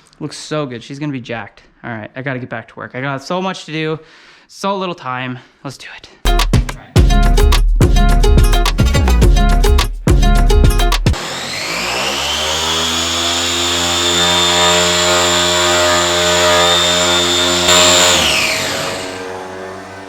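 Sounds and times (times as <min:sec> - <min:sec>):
electric polisher whining: 0:11.2 - 0:20.0.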